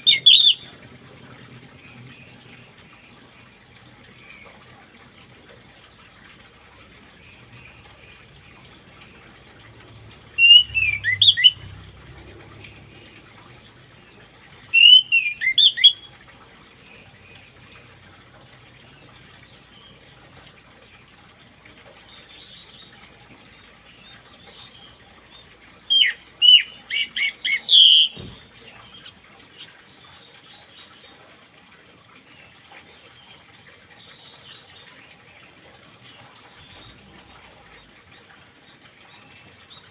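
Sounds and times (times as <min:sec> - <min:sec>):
running water hiss: 0:00.0 - 0:39.9
songbird chirping: 0:10.1 - 0:16.1.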